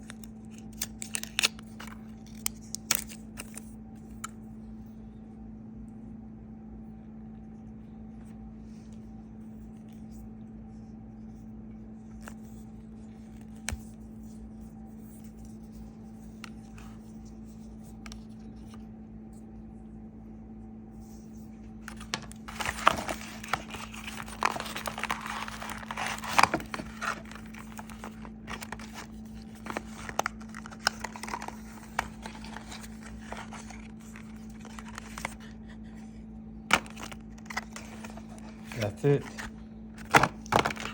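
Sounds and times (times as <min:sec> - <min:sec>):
packaging crinkling and tearing: 0:00.0 - 0:03.7, 0:21.8 - 0:36.0, 0:36.7 - 0:40.9
low hum: 0:00.0 - 0:40.9.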